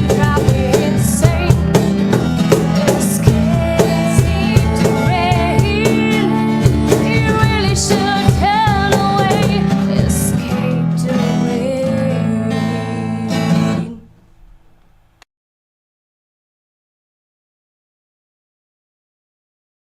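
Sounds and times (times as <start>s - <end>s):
person singing with vibrato: 0.0s - 1.7s, 2.6s - 14.1s
drum hits: 0.0s - 9.7s
acoustic guitar: 0.0s - 15.2s.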